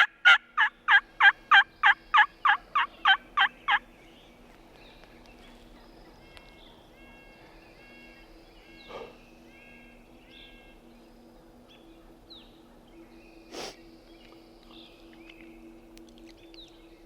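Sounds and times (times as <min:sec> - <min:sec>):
faint low steady hum: 0:00.0 - 0:17.0
songbirds chirping and singing: 0:00.0 - 0:17.0.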